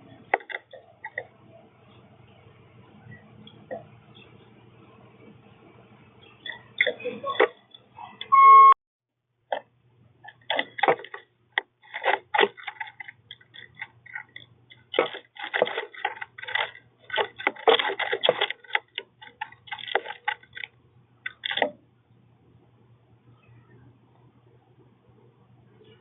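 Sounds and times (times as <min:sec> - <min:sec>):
faint low hum: 0:00.0 - 0:26.0
birds pecking at seed: 0:10.2 - 0:21.7.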